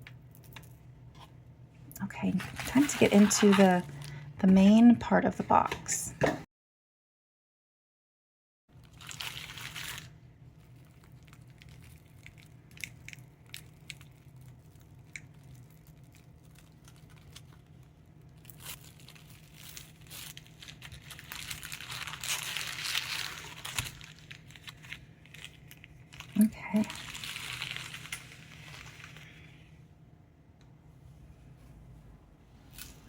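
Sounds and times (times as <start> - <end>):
packaging crinkling and tearing: 2.2 - 4.3, 8.8 - 29.6.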